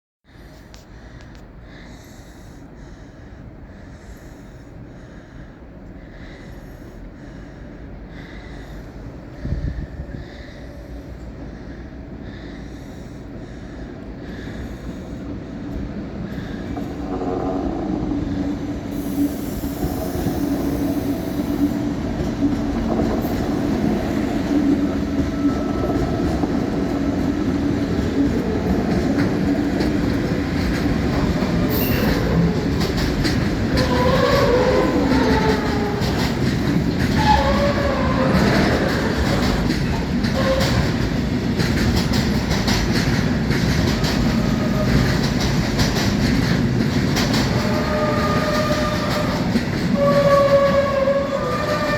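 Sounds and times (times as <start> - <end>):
train rolling rumble: 0.3 - 51.9
wheels clicking over rail joints: 18.9 - 51.9.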